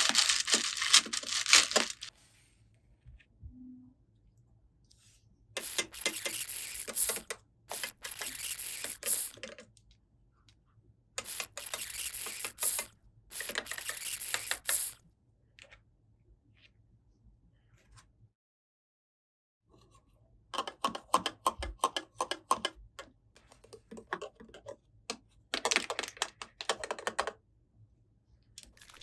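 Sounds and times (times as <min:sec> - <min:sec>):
packaging being torn and crinkled: 0:00.0 - 0:02.1.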